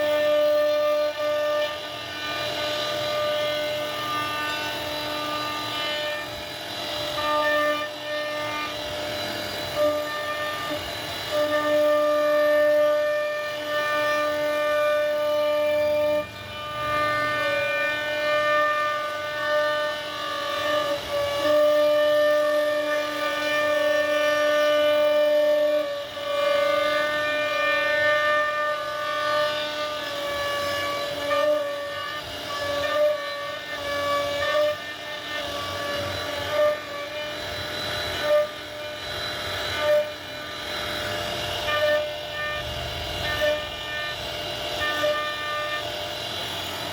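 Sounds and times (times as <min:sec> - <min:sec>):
router spindle whining: 0:00.0 - 0:46.9.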